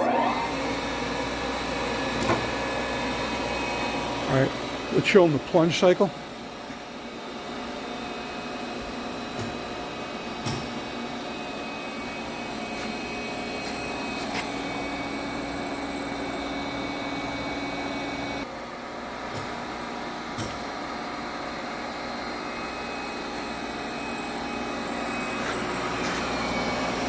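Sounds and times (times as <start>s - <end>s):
grinder machine hum: 0.0s - 27.0s.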